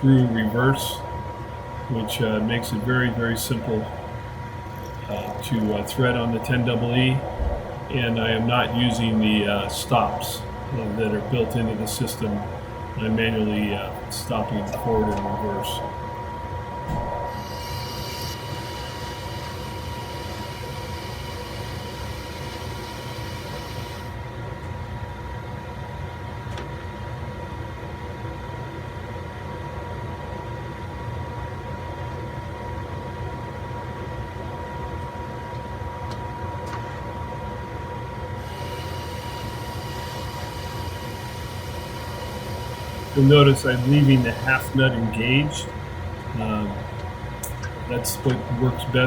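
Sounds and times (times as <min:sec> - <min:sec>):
high-pitched whine: 0:00.0 - 0:24.2, 0:38.4 - 0:49.0
lathe running: 0:00.0 - 0:24.2, 0:38.4 - 0:49.0.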